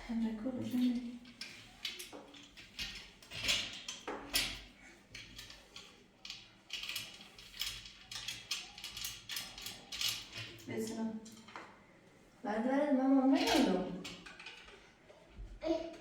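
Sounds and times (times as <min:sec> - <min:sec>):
objects knocking and scraping: 0:00.7 - 0:10.7, 0:13.4 - 0:15.5.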